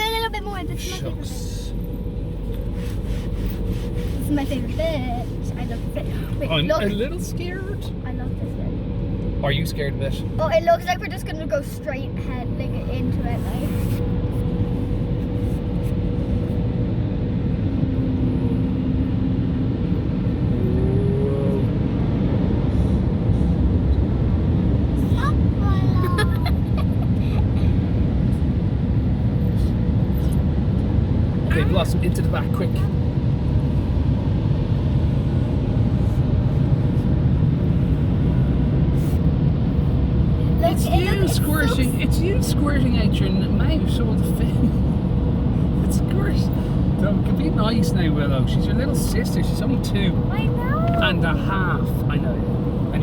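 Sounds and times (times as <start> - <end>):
car cabin rumble: 0.0 - 16.7
car wash rumble inside car: 0.0 - 53.0.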